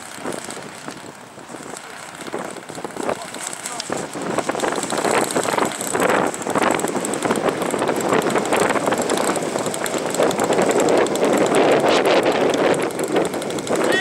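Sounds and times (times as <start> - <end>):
gusty wind buffeting microphone: 0.0 - 14.0.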